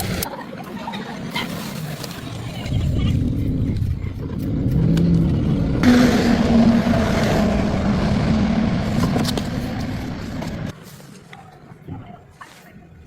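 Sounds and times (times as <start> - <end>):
car engine revving: 2.2 - 10.7.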